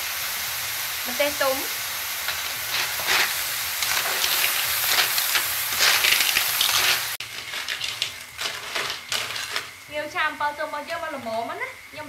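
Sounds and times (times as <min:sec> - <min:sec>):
food sizzling in a wok: 0:00.0 - 0:12.0
metal ladle scraping a wok: 0:02.2 - 0:09.8.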